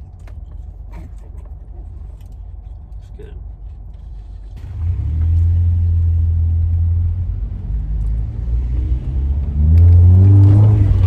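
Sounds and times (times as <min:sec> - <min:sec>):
loud car exhaust drone: 0:04.2 - 0:11.0.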